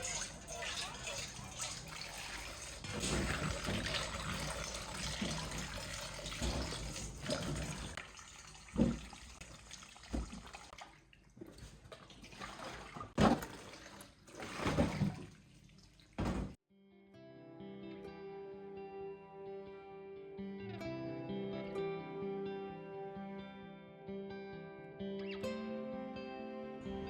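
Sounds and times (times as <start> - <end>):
water running and splashing: 0.0 - 16.6.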